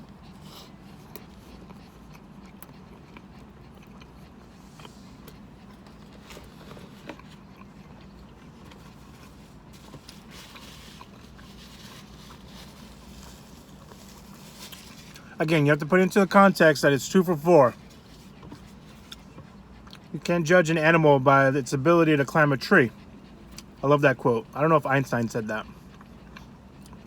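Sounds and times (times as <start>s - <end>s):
person chewing food: 0.0s - 15.3s, 17.7s - 20.2s, 22.9s - 23.8s, 25.6s - 27.0s
steady low hum: 0.0s - 27.0s.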